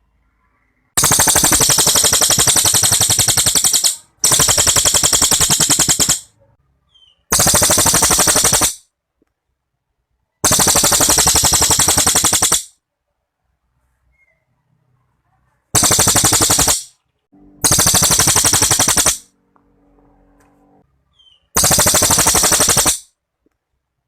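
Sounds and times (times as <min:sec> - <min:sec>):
songbird rapid rattling trill: 0:01.0 - 0:06.3, 0:10.4 - 0:12.7, 0:15.8 - 0:17.0, 0:17.6 - 0:19.2, 0:21.2 - 0:23.1.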